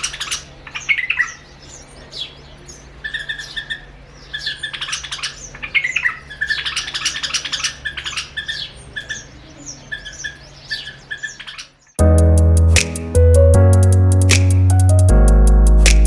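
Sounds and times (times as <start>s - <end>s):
loud music: 12.0s - 16.0s.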